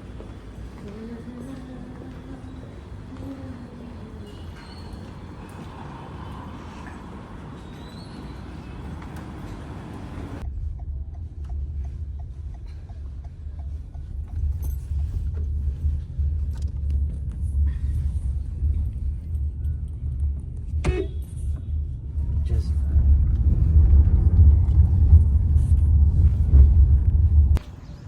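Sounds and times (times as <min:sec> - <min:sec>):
car road rumble inside cabin: 0:08.3 - 0:27.6.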